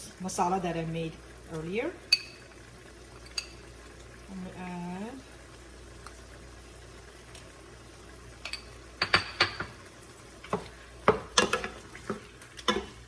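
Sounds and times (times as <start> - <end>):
spoon clinking on a pot: 2.1 - 2.5, 3.2 - 3.6, 8.4 - 9.7, 12.7 - 13.0.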